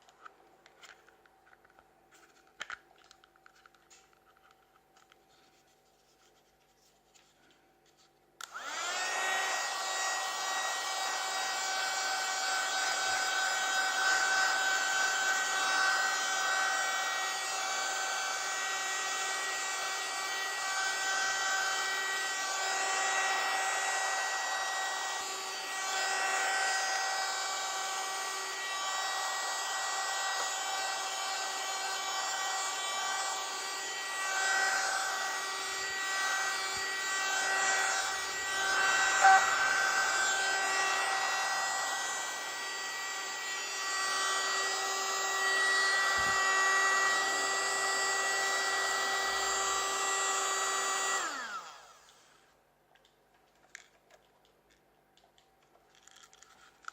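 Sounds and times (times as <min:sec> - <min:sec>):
small vacuum motor whining: 0:08.4 - 0:52.6.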